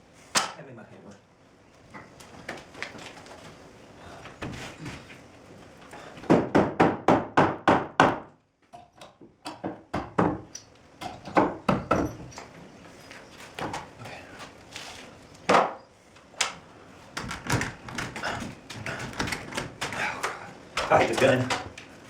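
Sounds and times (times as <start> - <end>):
hammer striking wood: 6.2 - 8.4, 9.4 - 10.4, 11.0 - 12.2, 15.5 - 15.8.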